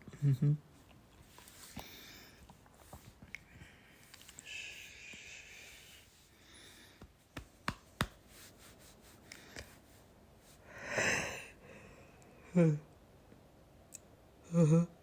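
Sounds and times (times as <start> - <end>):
rustling noise: 0.7 - 1.8, 7.0 - 10.6.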